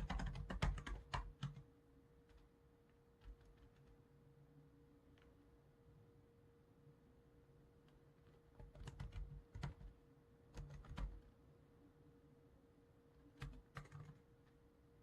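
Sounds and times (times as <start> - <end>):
computer keyboard typing: 0.0 - 1.6, 3.2 - 4.0, 8.2 - 11.2, 13.3 - 14.3
faint steady hum: 0.0 - 15.0.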